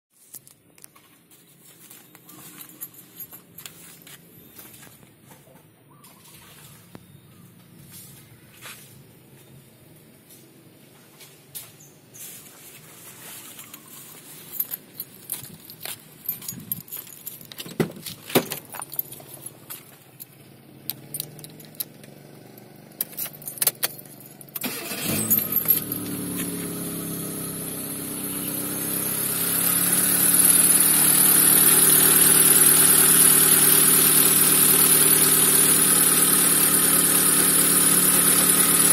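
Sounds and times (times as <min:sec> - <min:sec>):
keys jangling: 0:02.2 - 0:04.2, 0:13.6 - 0:22.1, 0:23.0 - 0:24.6, 0:25.2 - 0:26.5
car engine cranking and running: 0:14.6 - 0:38.9.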